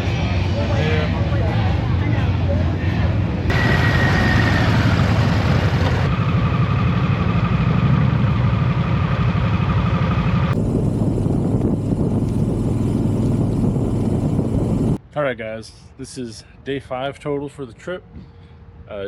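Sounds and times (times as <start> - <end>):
motorcycle engine running: 3.5 - 15.0.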